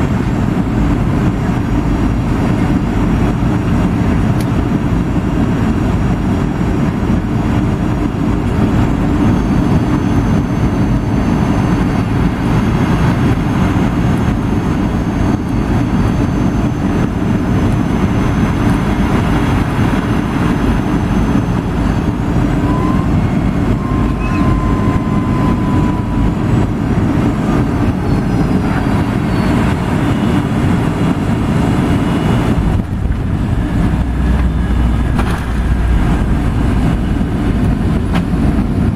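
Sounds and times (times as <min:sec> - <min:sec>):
airplane engines and airflow rumble: 0:00.0 - 0:38.9
faint high whines: 0:08.0 - 0:38.9.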